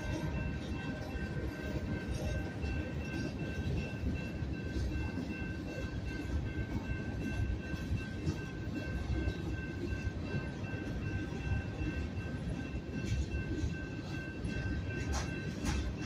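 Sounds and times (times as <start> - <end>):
crossing warning bell: 0.0 - 16.0.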